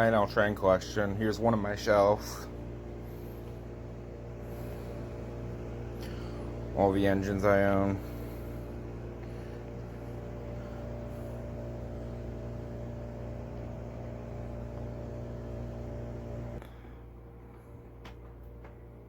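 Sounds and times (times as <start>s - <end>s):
mechanical hum with low drone: 0.0s - 19.0s.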